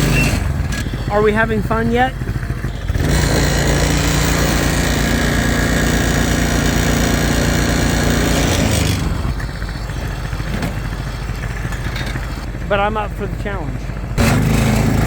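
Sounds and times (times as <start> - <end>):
dune buggy engine revving: 0.0 - 15.0.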